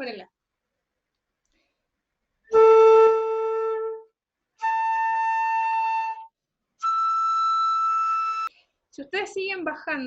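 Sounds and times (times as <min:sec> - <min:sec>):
flute playing held notes: 0:02.5 - 0:08.5.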